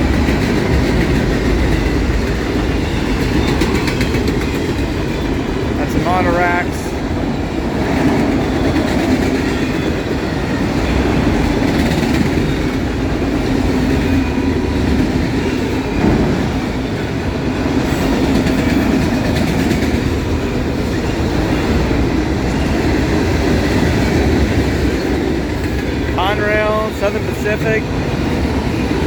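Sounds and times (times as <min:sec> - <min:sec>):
freight train wheels rumbling on rails: 0:00.0 - 0:29.0.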